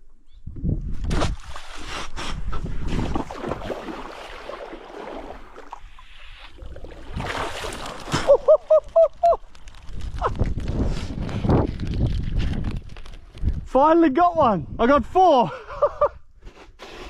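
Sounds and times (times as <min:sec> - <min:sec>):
seawater sloshing and splashing: 0:01.0 - 0:09.6.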